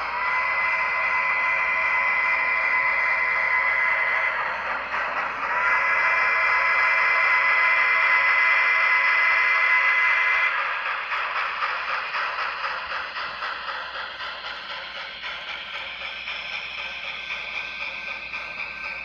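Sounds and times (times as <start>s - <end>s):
model steam locomotive whistle: 0.0s - 10.9s.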